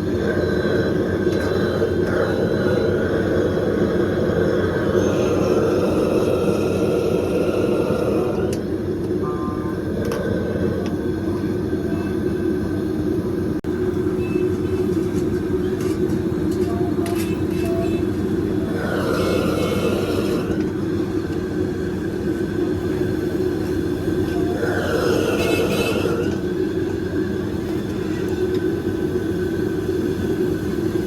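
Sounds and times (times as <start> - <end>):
street market low rumble: 0.0 - 31.0.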